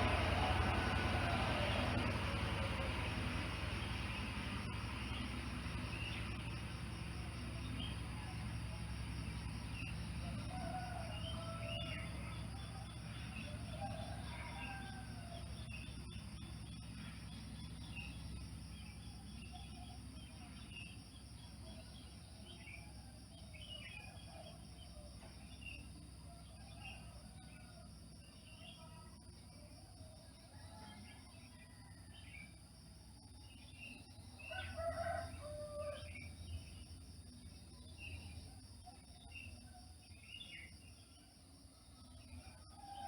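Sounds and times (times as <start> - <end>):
low hum: 0.0 - 14.1.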